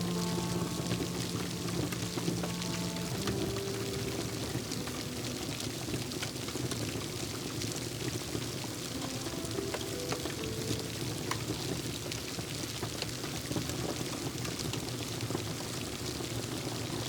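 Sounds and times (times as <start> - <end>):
soft sustained music notes: 0.0 - 12.3
steady rain: 0.0 - 17.0
wood fire crackling: 0.0 - 17.0.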